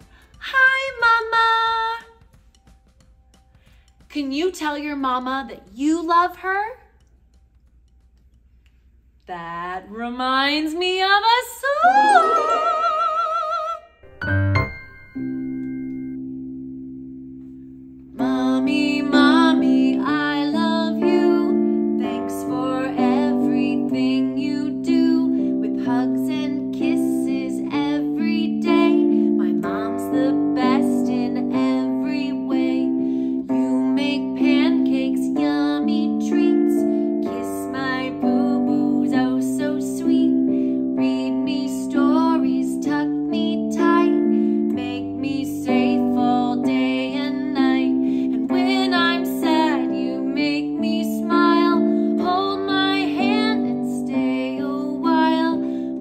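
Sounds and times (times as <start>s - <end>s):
woman singing: 0.0s - 2.3s, 9.3s - 14.0s, 18.2s - 56.0s
piano accompaniment: 13.6s - 56.0s.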